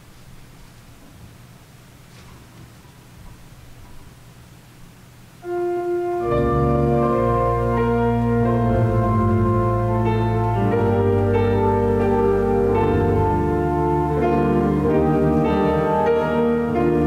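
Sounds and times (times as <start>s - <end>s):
organ music chords: 5.4s - 17.0s
deep bass notes: 6.2s - 17.0s.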